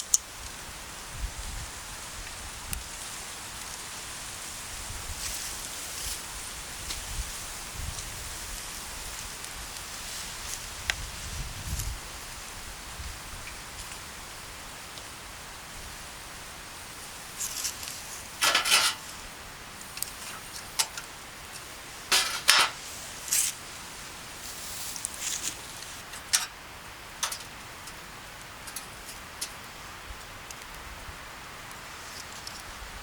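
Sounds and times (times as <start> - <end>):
steady hiss: 0.0 - 33.0
kitchenware clinking and clattering: 18.4 - 19.0, 22.1 - 22.8.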